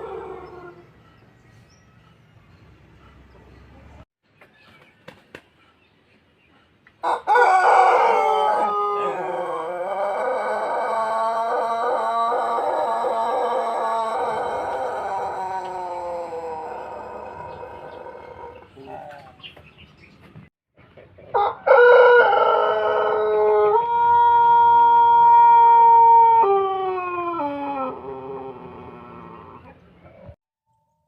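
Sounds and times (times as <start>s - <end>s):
rooster long crow: 7.0s - 18.5s, 21.4s - 28.7s.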